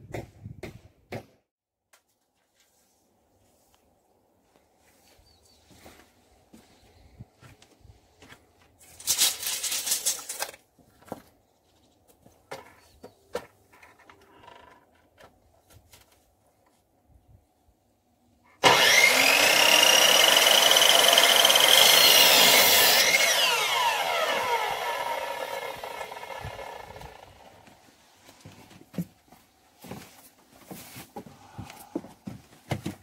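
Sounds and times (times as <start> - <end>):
power saw whining: 18.6 - 27.6.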